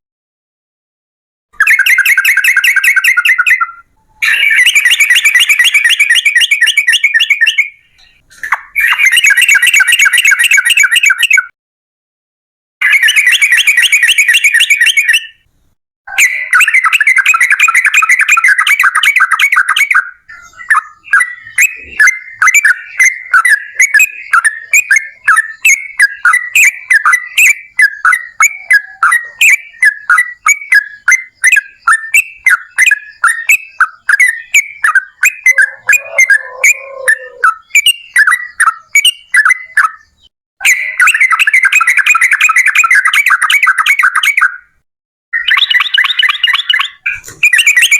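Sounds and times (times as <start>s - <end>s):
bird chattering trill: 1.6s - 11.5s, 16.1s - 44.7s, 45.4s - 47.9s
bird bubbly chirps: 16.2s - 44.6s.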